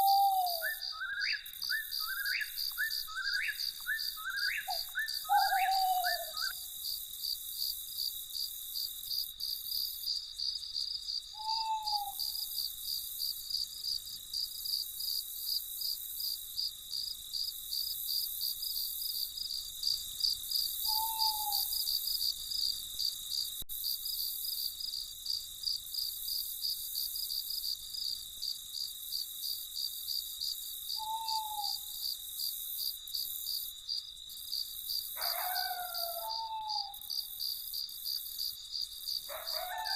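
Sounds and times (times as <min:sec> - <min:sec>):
owl hooting: 0:00.0 - 0:06.6, 0:11.4 - 0:12.5, 0:20.9 - 0:21.9, 0:31.0 - 0:31.9, 0:35.2 - 0:37.1
crickets chirping: 0:00.0 - 0:39.9
high insect trill: 0:00.0 - 0:39.9.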